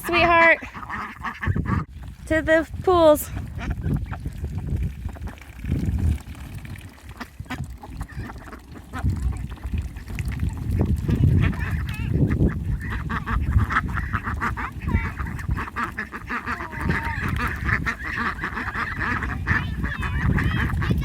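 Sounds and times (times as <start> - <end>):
ducks quacking: 0.0 - 1.9, 3.2 - 4.4, 7.0 - 21.0.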